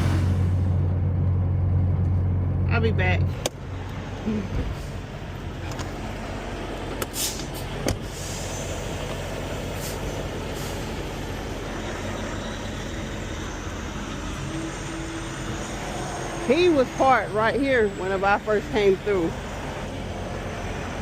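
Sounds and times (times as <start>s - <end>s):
air hiss: 0.0s - 0.7s
truck idling: 0.0s - 21.0s.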